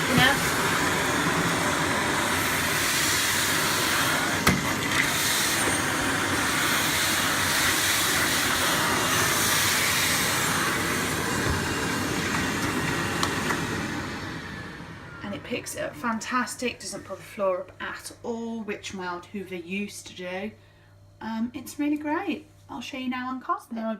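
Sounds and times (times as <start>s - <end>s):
vacuum cleaner running on tiles: 0.0s - 17.6s.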